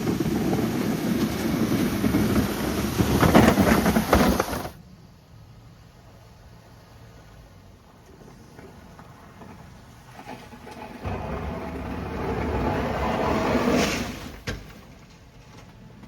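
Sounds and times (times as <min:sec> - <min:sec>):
rush of pushed snow: 0:00.0 - 0:04.8, 0:10.8 - 0:14.4.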